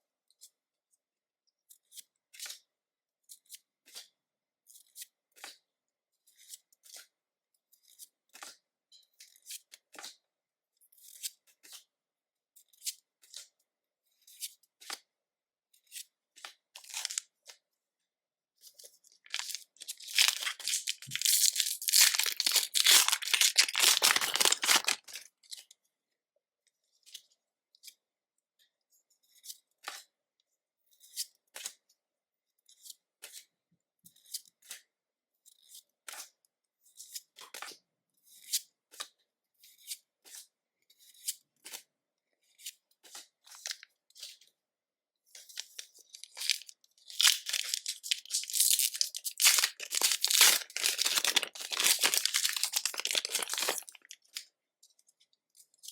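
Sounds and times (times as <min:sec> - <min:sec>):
foil wrapper tearing and crinkling: 0:16.9 - 0:17.2, 0:19.3 - 0:25.2, 0:45.6 - 0:54.3.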